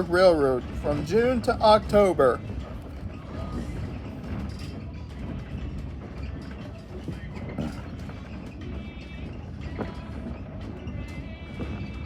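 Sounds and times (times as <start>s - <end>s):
railway coach rolling on track: 0.0s - 8.2s.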